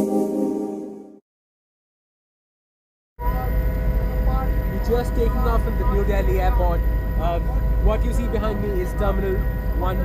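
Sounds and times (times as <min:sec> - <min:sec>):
synthesizer organ music: 0:00.0 - 0:01.2.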